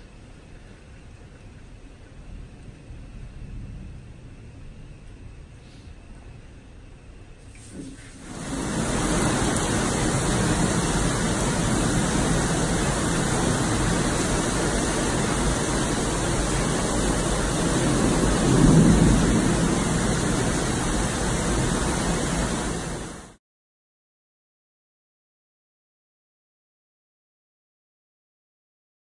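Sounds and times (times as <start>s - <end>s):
heavy rain downpour: 8.1s - 23.4s.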